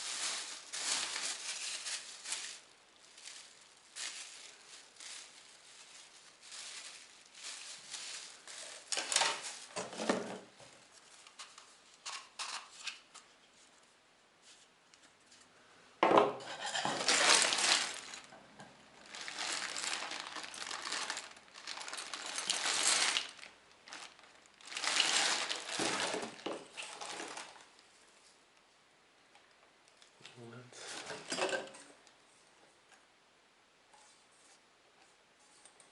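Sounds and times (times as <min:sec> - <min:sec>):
rubbing or rustling noise: 0:00.0 - 0:15.5, 0:16.5 - 0:18.3, 0:19.0 - 0:28.4, 0:33.9 - 0:35.9.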